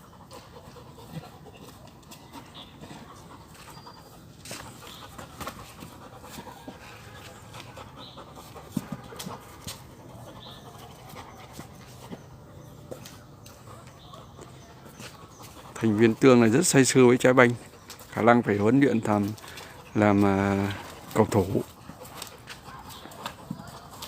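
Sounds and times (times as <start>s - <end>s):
dog panting: 0.0s - 24.0s
knocks and scuffs: 0.6s - 16.1s.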